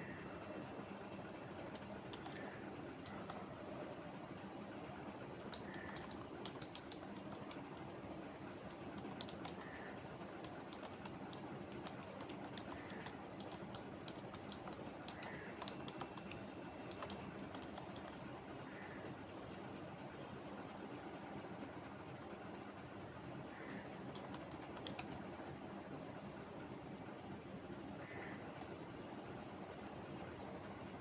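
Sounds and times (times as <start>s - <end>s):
low background noise: 0.0s - 31.0s
computer keyboard key clicks: 1.0s - 3.4s, 5.5s - 7.9s, 8.6s - 18.2s, 24.1s - 25.2s.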